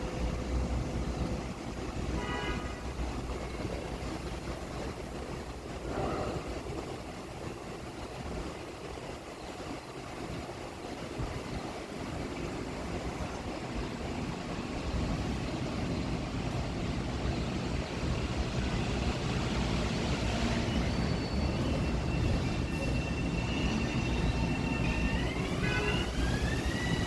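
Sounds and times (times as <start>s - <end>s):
electric train rumble: 0.0s - 27.0s
traction motor whine: 22.0s - 27.0s.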